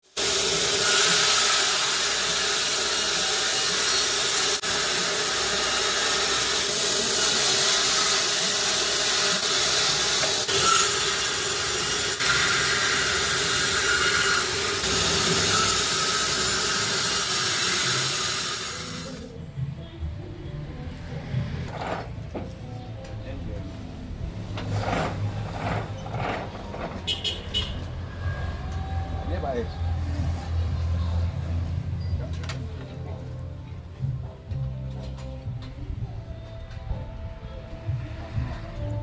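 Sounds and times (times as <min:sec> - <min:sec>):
saw cutting through log: 0:00.0 - 0:19.3, 0:24.6 - 0:26.6.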